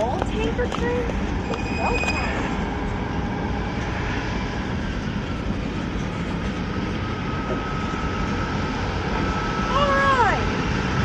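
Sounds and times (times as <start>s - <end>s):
train wheels rumbling on rails: 0.0s - 11.0s
thin high squeal: 1.4s - 2.7s.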